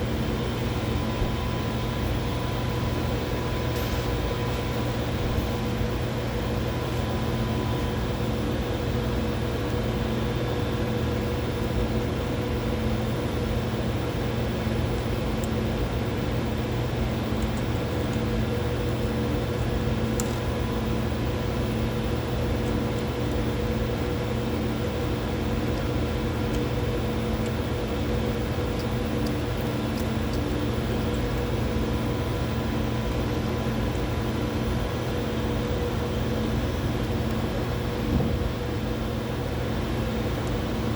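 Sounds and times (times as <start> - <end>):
instruments and ventilation hum: 0.0 - 40.9.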